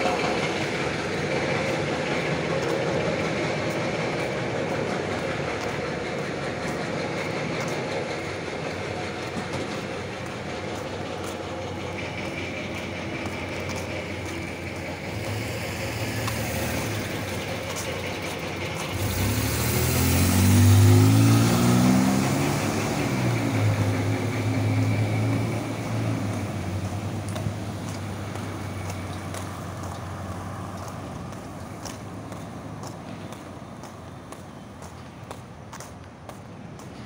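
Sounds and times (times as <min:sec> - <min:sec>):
street noise hiss: 0:00.0 - 0:37.0
car engine revving: 0:12.0 - 0:29.5.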